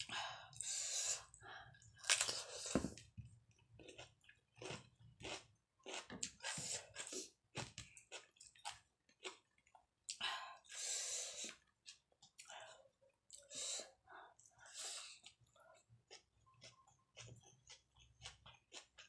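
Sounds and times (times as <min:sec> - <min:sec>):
wet chewing and smacking: 0:03.0 - 0:10.2, 0:14.4 - 0:19.0.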